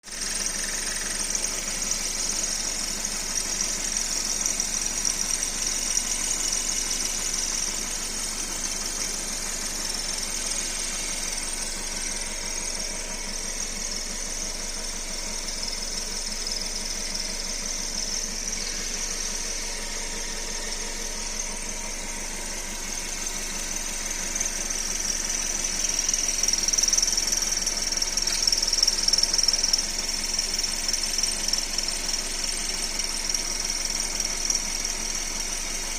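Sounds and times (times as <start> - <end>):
car engine idling: 0.0 - 35.9
high-pitched belt pulley squeak: 0.1 - 8.8, 9.6 - 35.9.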